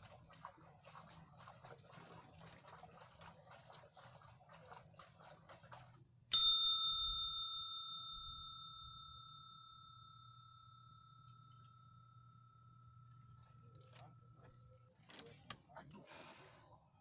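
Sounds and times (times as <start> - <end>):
bell strike ringing: 6.3 - 12.6.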